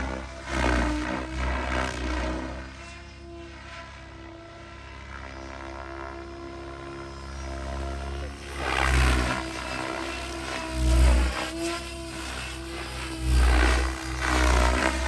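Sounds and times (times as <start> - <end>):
radio-controlled helicopter flying: 0.0 - 15.0
rotor whoosh: 8.5 - 15.0.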